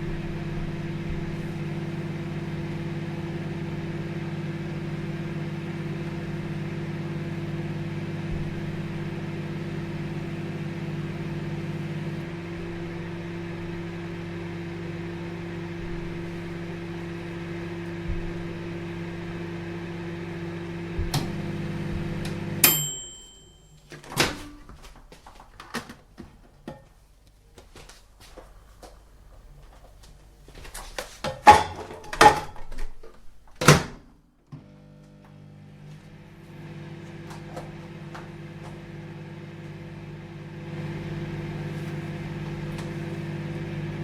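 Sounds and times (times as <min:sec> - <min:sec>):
microwave oven humming: 0:00.0 - 0:24.9, 0:28.9 - 0:44.0
microwave ding: 0:22.6 - 0:24.6.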